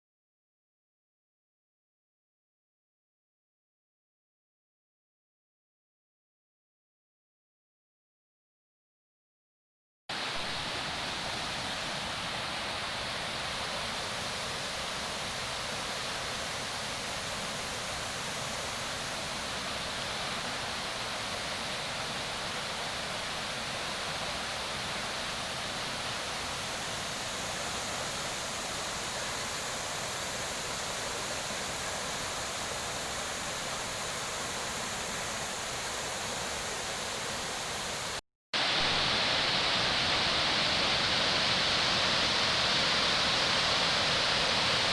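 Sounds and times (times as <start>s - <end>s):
waterfall and stream rushing: 10.1s - 44.9s.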